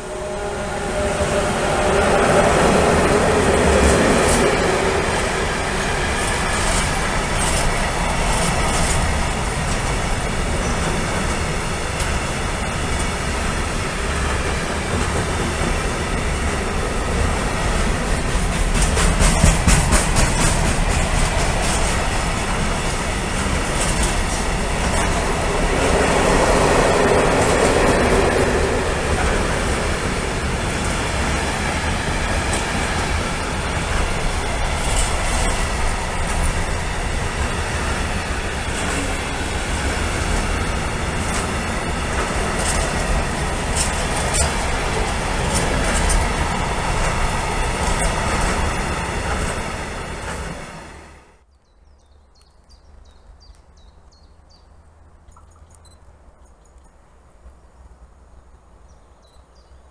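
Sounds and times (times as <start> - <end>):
freight train wheels rumbling on rail: 0.0 - 51.5.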